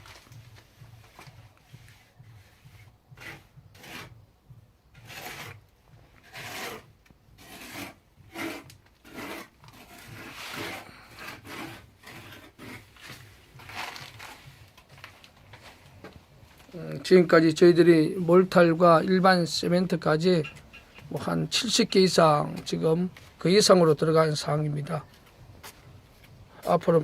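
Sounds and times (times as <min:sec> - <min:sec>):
trowel scraping wet mortar: 0:01.7 - 0:04.2, 0:05.0 - 0:14.6.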